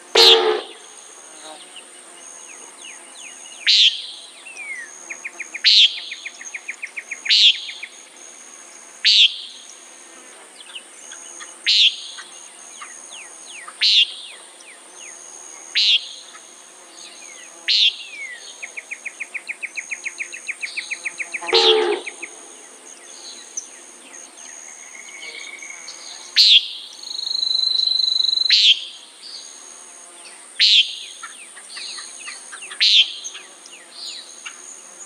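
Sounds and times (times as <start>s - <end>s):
nighthawk nasal peent call: 0.0s - 1.0s, 21.3s - 22.7s
high-pitched insect chorus: 0.0s - 35.0s.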